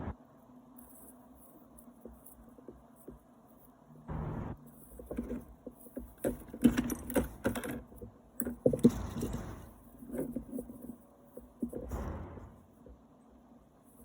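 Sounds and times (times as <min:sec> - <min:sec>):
small metal parts clinking: 0:04.7 - 0:11.9.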